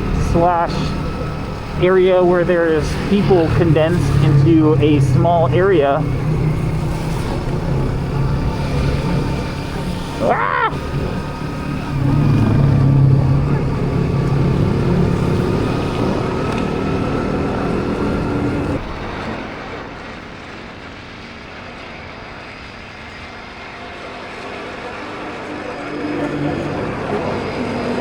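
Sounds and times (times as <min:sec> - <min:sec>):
motorbike engine running: 0:00.0 - 0:18.9
road and wind noise: 0:00.0 - 0:28.0.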